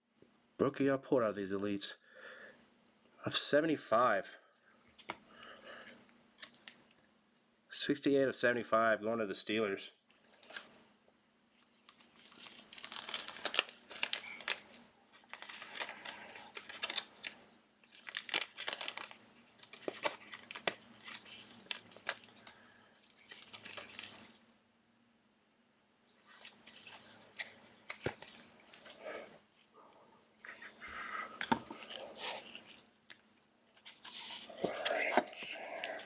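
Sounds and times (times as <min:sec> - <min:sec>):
cards shuffling and snapping: 0:11.8 - 0:24.3, 0:26.2 - 0:29.0, 0:30.5 - 0:33.2, 0:33.8 - 0:36.0
foil wrapper tearing and crinkling: 0:11.8 - 0:24.5, 0:26.2 - 0:29.0.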